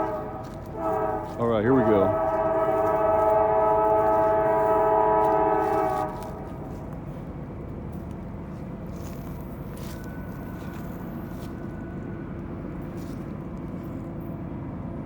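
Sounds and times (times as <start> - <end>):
locomotive air horn chord: 0.0 - 7.3
freight train rumbling past: 0.0 - 15.0.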